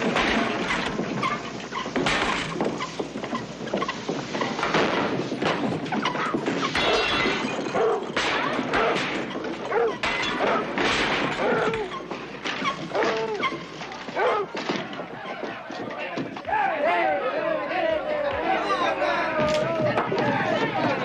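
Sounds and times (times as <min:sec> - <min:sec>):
glass and wood breaking: 0:00.0 - 0:15.0
thuds of blows: 0:00.0 - 0:16.6.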